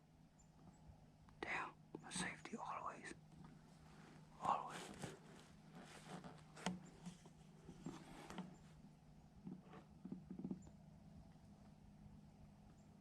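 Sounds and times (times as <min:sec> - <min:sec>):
faint rustles: 0:01.4 - 0:11.8.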